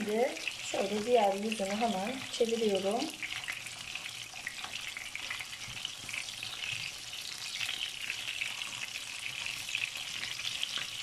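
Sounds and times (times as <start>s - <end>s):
meat sizzling in oil: 0.0s - 11.0s
spatula turning patties: 0.0s - 11.0s.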